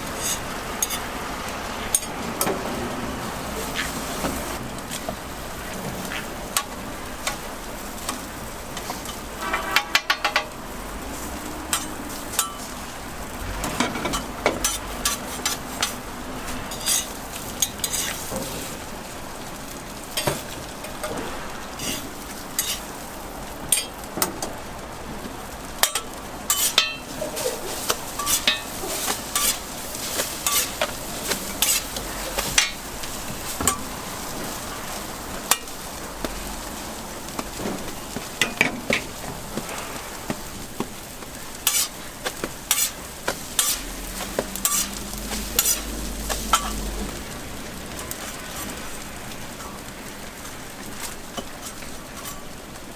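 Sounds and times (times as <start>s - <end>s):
metal utensils clacking and scraping: 0.0s - 1.2s, 1.8s - 2.6s, 3.6s - 10.6s, 11.3s - 12.9s, 13.6s - 18.9s, 20.1s - 23.0s, 23.6s - 24.5s, 25.8s - 47.4s, 51.0s - 52.6s
food sizzling on a griddle: 0.0s - 52.9s.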